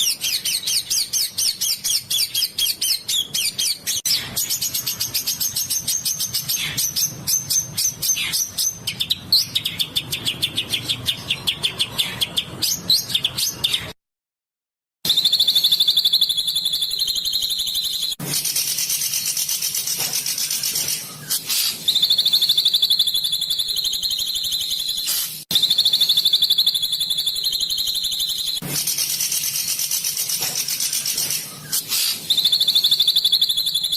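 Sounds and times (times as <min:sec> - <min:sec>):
songbirds singing: 0:00.0 - 0:14.0, 0:15.1 - 0:18.2
high fast bird trills: 0:15.1 - 0:33.9.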